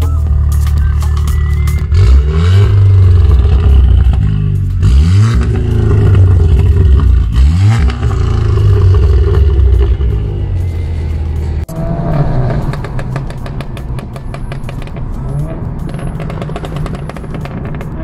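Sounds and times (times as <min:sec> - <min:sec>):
car engine revving hard: 0:01.9 - 0:10.4.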